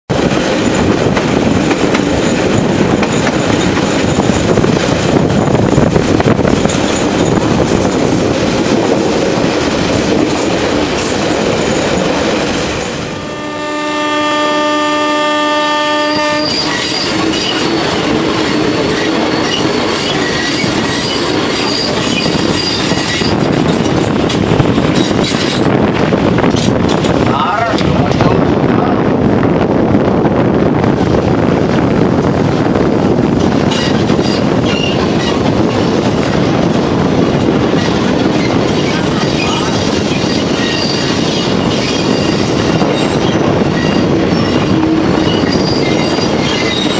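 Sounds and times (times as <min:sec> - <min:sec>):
train rattling on rails: 0:00.1 - 0:46.9
train horn blast: 0:13.1 - 0:17.2, 0:44.6 - 0:45.7.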